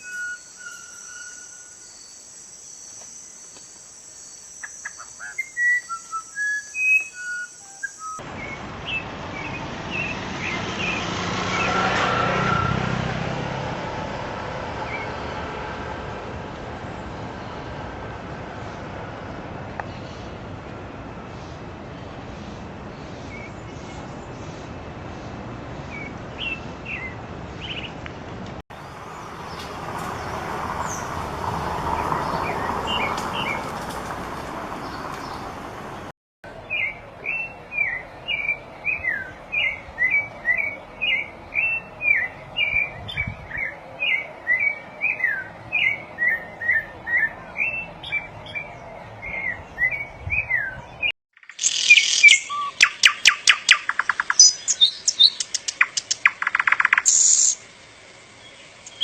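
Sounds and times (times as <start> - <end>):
songbirds chirping: 0.0 - 11.8, 16.6 - 59.0
loud high birdsong: 0.0 - 12.8, 21.2 - 28.1, 28.7 - 59.0
rapid high bird chirps: 51.4 - 57.6, 58.4 - 59.0.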